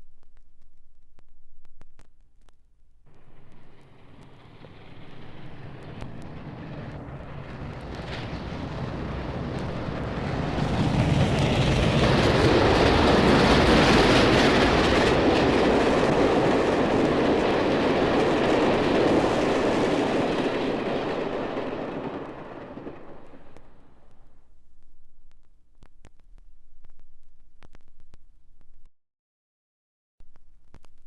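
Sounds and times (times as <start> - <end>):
train passing by: 3.1 - 24.2.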